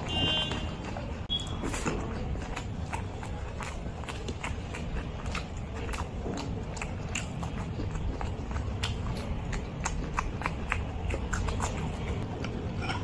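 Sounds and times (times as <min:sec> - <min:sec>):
person chewing food: 0:00.0 - 0:13.0
wet mouth clicks: 0:00.5 - 0:13.0.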